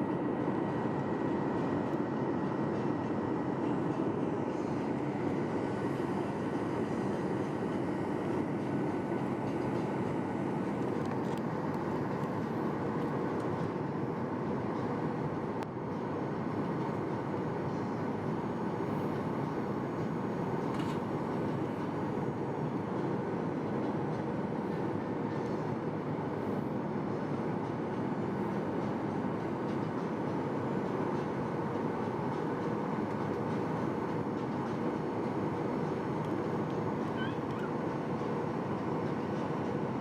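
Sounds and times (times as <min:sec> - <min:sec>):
airliner cabin roar: 0:00.0 - 0:40.0.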